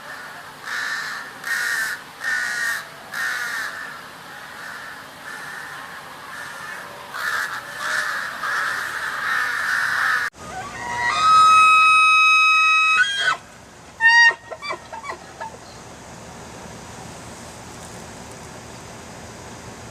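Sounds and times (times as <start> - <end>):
crow cawing: 0.1 - 11.2.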